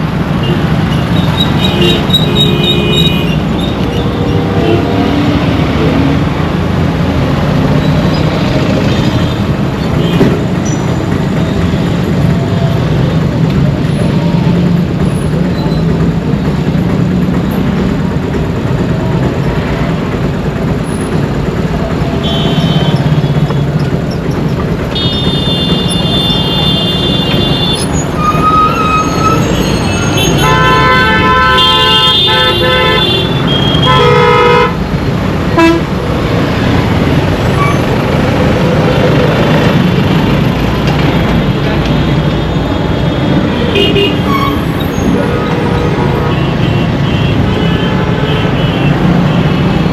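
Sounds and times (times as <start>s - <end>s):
road traffic: 0.0s - 49.9s
vehicle horns honking: 0.4s - 4.9s, 22.2s - 23.8s, 25.0s - 34.8s, 35.5s - 35.9s, 43.5s - 49.9s.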